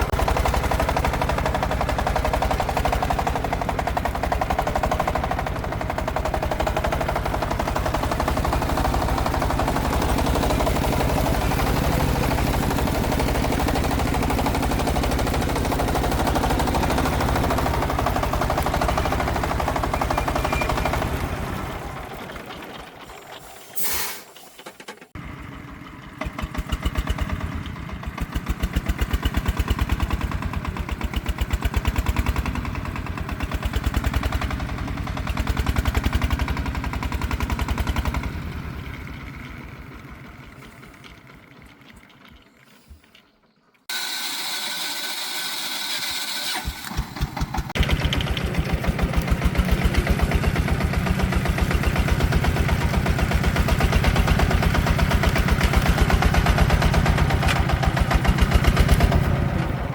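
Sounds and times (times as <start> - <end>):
diesel engine pulsing: 0.0 - 43.0, 43.9 - 59.9
sudden hiss: 23.5 - 24.7.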